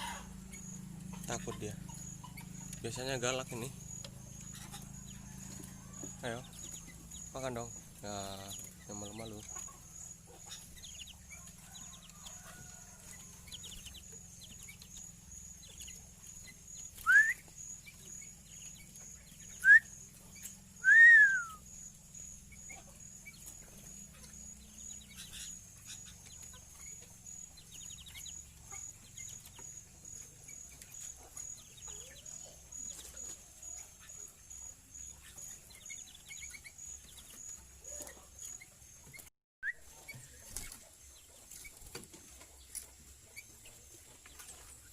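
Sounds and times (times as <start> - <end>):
bird calling whistled notes: 17.0 - 17.5, 19.6 - 19.9, 20.8 - 21.6.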